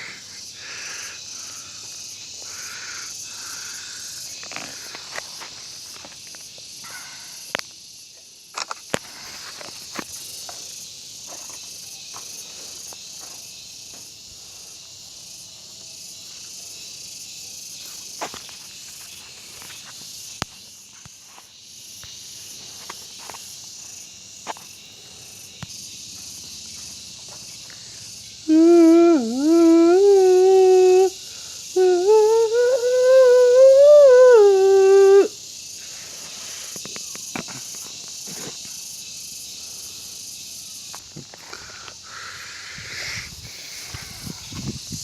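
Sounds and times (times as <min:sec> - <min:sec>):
insects chirring: 0:00.0 - 0:45.0
person humming: 0:28.4 - 0:35.4.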